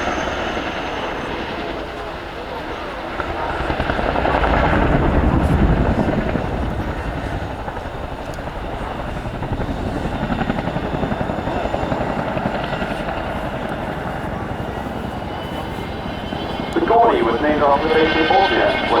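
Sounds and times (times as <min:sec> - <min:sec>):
helicopter rotors chopping: 0:00.0 - 0:19.0.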